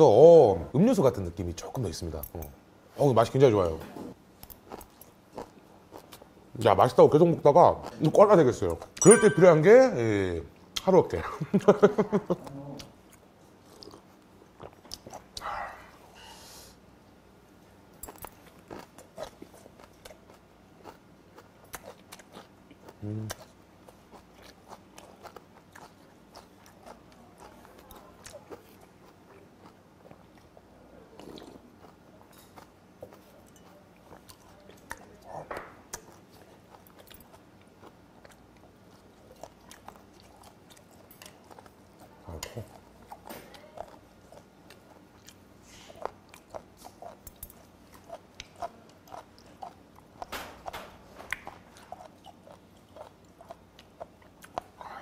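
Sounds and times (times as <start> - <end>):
man chewing food: 4.1 - 6.6, 11.6 - 16.8, 17.4 - 55.0
person chewing wet mouth smacks: 47.9 - 50.3, 51.3 - 55.0.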